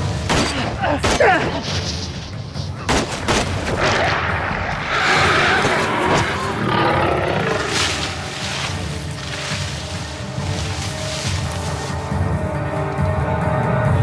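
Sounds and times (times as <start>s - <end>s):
sharp gunshots: 2.9s - 4.1s
loud rough roar: 4.3s - 8.6s.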